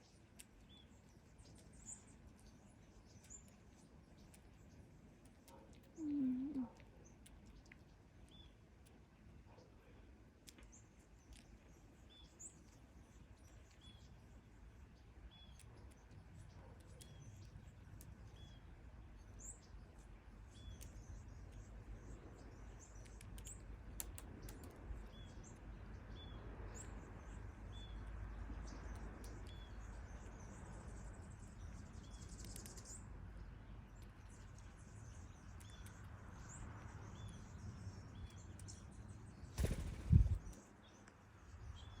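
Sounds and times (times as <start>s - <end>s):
birds chirping: 39.4s - 41.0s
low wind rumble: 39.6s - 40.6s.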